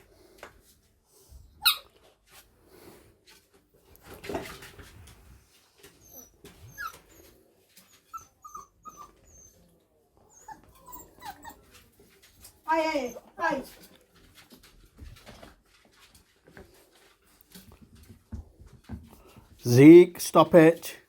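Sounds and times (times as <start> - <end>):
puppies whimpering and squeaking: 5.8 - 13.8
clicks and scuffling of chewing: 13.6 - 19.6.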